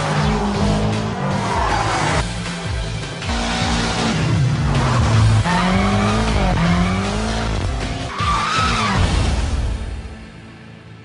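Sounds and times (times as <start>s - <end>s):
car engine revving hard: 3.2s - 8.1s.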